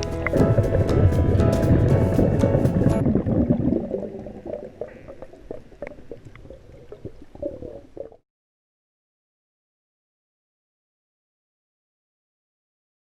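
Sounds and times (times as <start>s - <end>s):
background music: 0.0s - 3.2s
water gurgling and bubbling: 0.0s - 8.2s.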